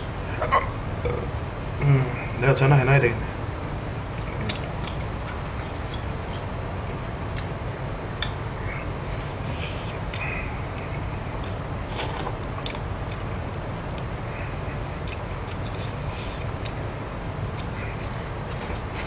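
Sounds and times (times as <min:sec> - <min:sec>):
steady low hum: 0:00.0 - 0:19.0
man chewing with wet smacks: 0:04.1 - 0:07.6, 0:09.5 - 0:14.2, 0:15.0 - 0:16.8, 0:17.5 - 0:19.0.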